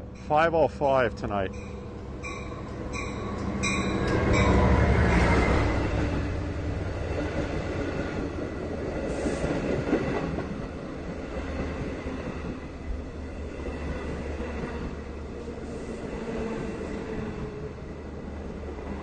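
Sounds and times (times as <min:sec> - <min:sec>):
train wheels rumbling on rail: 0:01.5 - 0:19.0.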